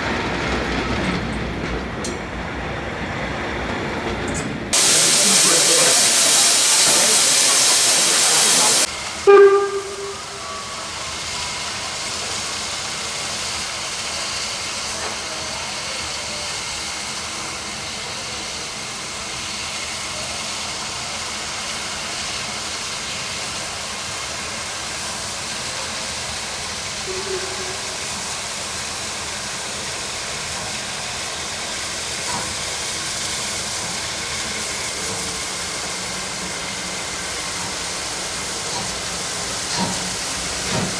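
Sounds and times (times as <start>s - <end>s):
steam hissing: 4.7s - 40.9s
steam locomotive whistle: 4.8s - 11.7s, 27.0s - 28.2s.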